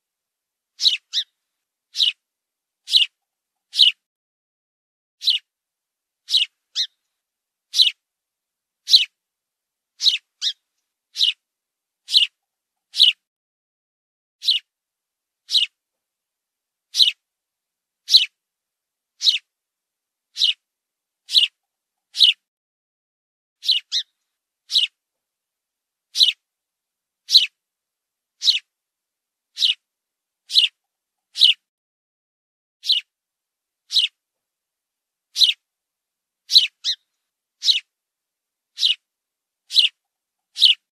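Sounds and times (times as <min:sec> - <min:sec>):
fledgling bird cheeping: 0:00.8 - 0:02.2, 0:02.9 - 0:04.0, 0:05.2 - 0:05.5, 0:06.3 - 0:07.0, 0:07.7 - 0:08.0, 0:08.8 - 0:09.2, 0:10.0 - 0:11.4, 0:12.1 - 0:13.2, 0:14.4 - 0:14.7, 0:15.5 - 0:15.8, 0:16.9 - 0:17.2, 0:18.1 - 0:18.4, 0:19.2 - 0:19.5, 0:20.3 - 0:20.6, 0:21.3 - 0:22.4, 0:23.6 - 0:25.0, 0:26.1 - 0:26.4, 0:27.3 - 0:27.6, 0:28.4 - 0:28.7, 0:29.6 - 0:29.8, 0:30.5 - 0:31.6, 0:32.8 - 0:33.1, 0:33.9 - 0:34.2, 0:35.4 - 0:35.6, 0:36.5 - 0:37.9, 0:38.8 - 0:39.0, 0:39.7 - 0:40.9.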